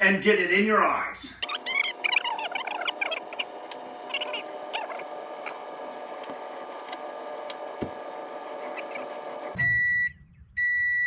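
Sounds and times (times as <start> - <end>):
microwave oven humming: 1.4 - 9.7
microwave beep: 1.4 - 11.0.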